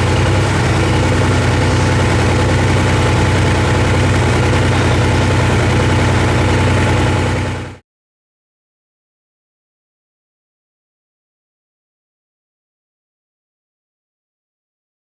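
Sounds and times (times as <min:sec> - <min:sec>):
engine idling loudly: 0:00.0 - 0:07.8.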